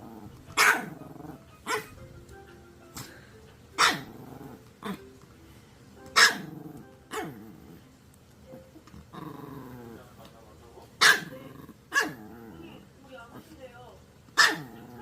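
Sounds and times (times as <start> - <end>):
dog growling: 0.0 - 2.0, 3.8 - 5.2, 6.2 - 10.3, 11.0 - 13.5, 14.4 - 15.0
dog barking: 0.5 - 0.9, 1.7 - 1.9, 3.8 - 4.1, 6.2 - 7.4, 11.0 - 12.2, 14.4 - 14.8.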